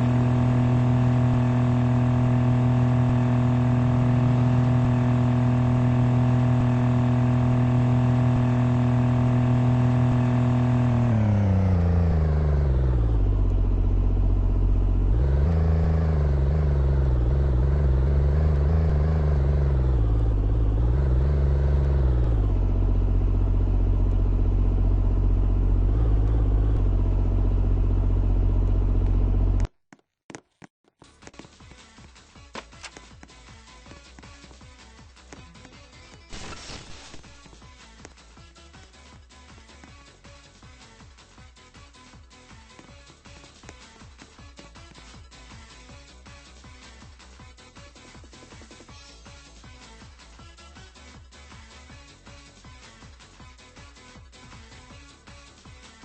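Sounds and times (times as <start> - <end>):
car engine running: 0.0 - 29.8.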